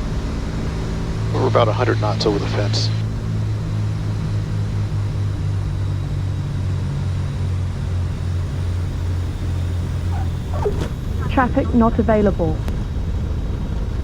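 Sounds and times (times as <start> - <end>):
aircraft engines low drone: 0.0 - 14.0.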